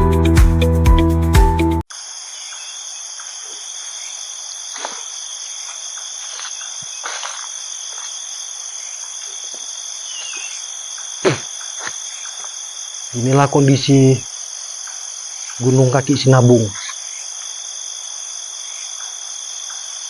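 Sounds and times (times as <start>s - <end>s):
music: 0.0s - 1.8s
crickets trilling: 1.9s - 20.0s.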